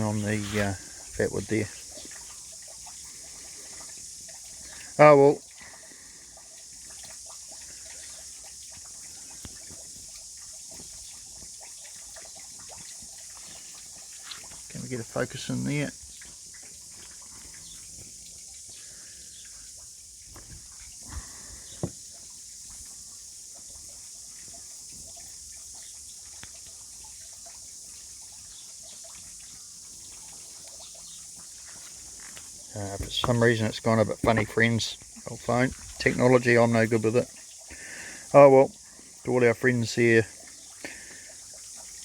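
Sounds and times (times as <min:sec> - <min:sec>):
rain hissing: 0:00.0 - 0:02.3, 0:03.0 - 0:06.3, 0:13.5 - 0:16.2, 0:16.9 - 0:22.2, 0:31.6 - 0:41.3
water drips and ticks: 0:00.0 - 0:42.0.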